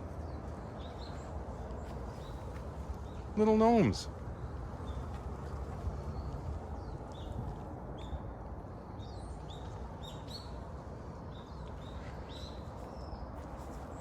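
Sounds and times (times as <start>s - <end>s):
songbird chirping: 0.0s - 5.3s.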